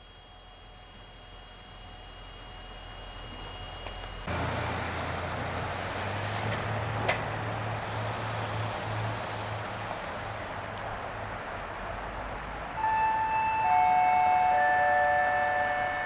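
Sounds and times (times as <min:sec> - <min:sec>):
locomotive hum: 0:00.0 - 0:16.0
train rumble: 0:03.2 - 0:16.0
faint steady tones: 0:12.8 - 0:16.0.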